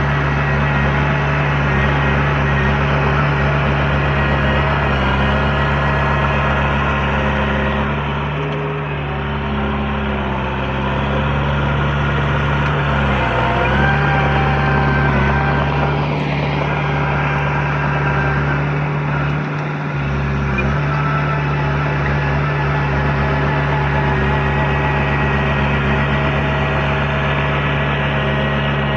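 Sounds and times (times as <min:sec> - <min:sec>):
heavy diesel engine running: 0:00.0 - 0:28.9.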